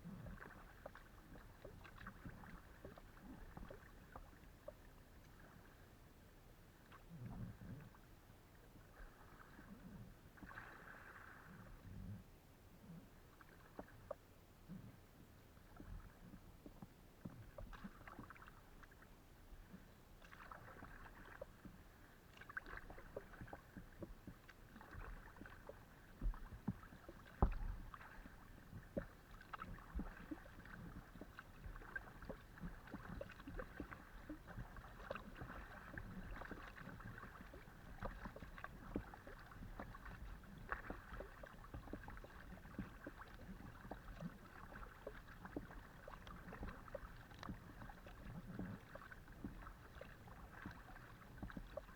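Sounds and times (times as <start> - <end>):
water splashing from paddle strokes: 0.3 - 5.7, 17.4 - 19.0, 20.2 - 51.9.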